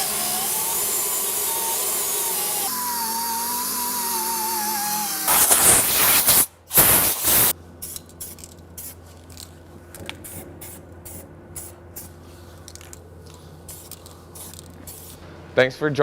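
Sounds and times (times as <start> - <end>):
aerosol can spraying: 5.3 - 9.0, 13.7 - 15.2.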